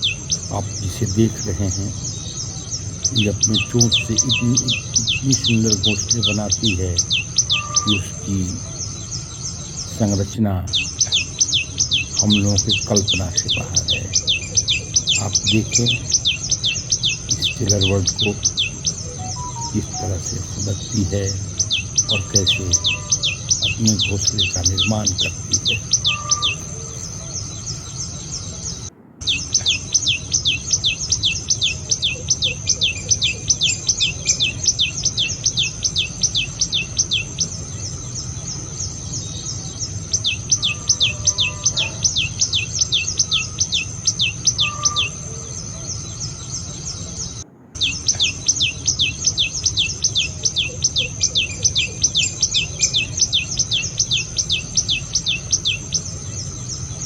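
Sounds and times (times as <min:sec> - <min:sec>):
bird calling sharp high notes: 0:03.1 - 0:09.2, 0:15.1 - 0:29.8.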